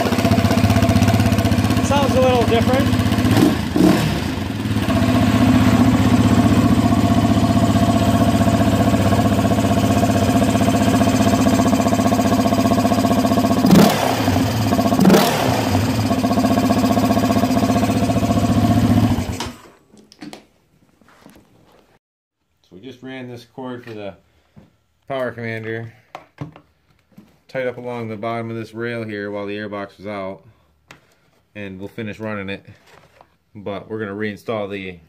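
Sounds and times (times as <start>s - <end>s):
quad engine idling and revving: 0.0s - 19.6s.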